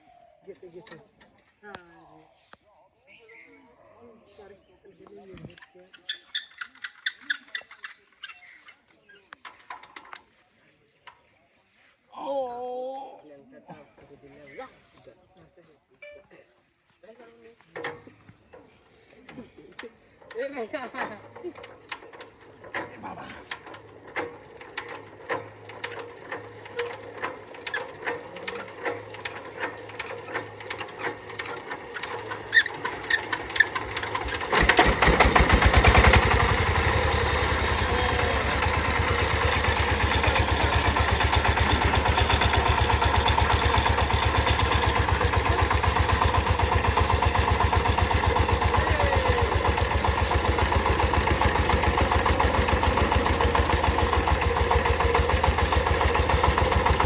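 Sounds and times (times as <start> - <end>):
diesel engine starting and running: 19.8 - 57.0.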